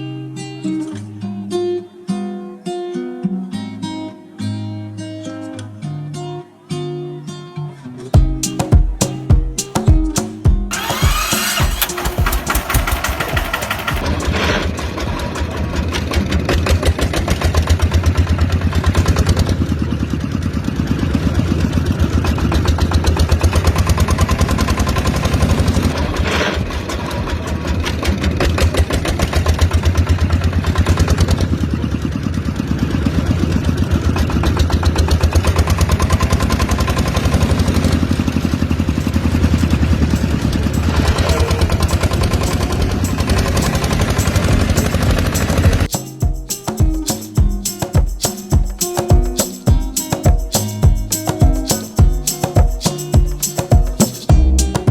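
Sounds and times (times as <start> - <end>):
model diesel engine running: 10.7 - 46.0.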